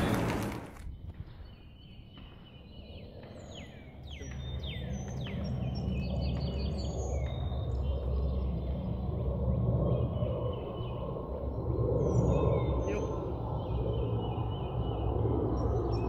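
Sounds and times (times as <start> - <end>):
low outdoor rumble: 0.0 - 1.2
birds chirping and singing: 0.0 - 9.2, 9.8 - 16.0.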